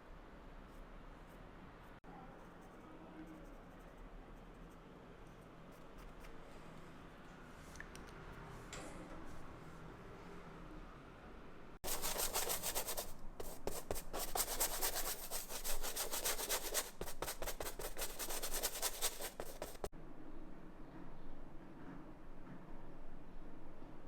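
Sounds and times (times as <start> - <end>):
rapid scratchy rubbing strokes: 11.8 - 19.9.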